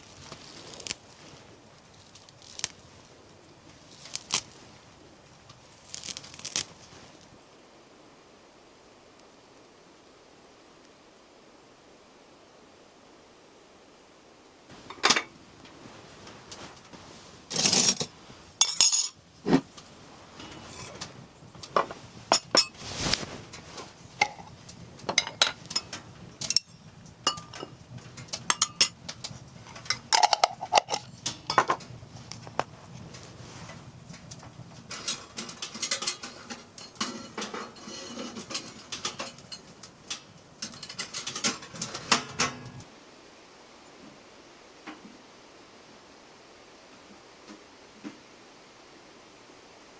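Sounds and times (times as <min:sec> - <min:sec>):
short rustling scrapes: 0:00.0 - 0:07.4, 0:14.7 - 0:26.0, 0:32.1 - 0:34.2, 0:34.8 - 0:39.8
cookware and utensils clinking: 0:14.8 - 0:15.4, 0:17.5 - 0:19.6, 0:20.4 - 0:22.9, 0:24.2 - 0:31.8, 0:34.9 - 0:42.8
cookware clinking and knocking: 0:14.9 - 0:15.3, 0:17.5 - 0:19.6, 0:21.8 - 0:22.8, 0:25.1 - 0:29.0, 0:29.8 - 0:31.8.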